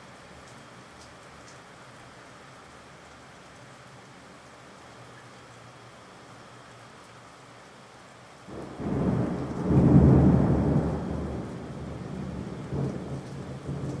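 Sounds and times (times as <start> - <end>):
thunder rumbling: 8.5 - 14.0.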